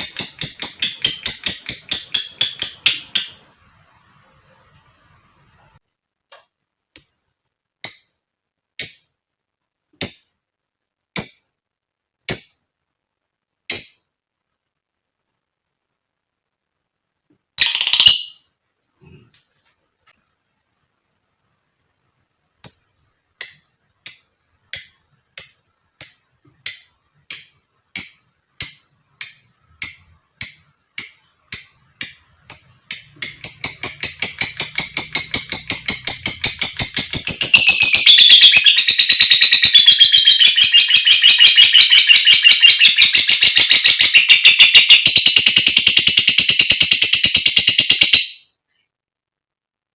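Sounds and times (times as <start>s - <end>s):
lovebird chirping and chattering: 0.0s - 3.5s, 13.7s - 14.1s, 17.6s - 18.5s, 22.6s - 48.4s.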